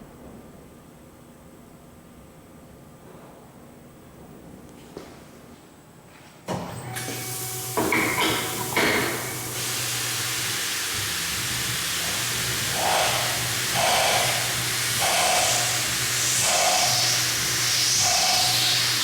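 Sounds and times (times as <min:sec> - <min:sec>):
lathe spindle hum: 0:06.9 - 0:19.0
hiss: 0:07.1 - 0:19.0
metal cutting sound: 0:12.1 - 0:19.0.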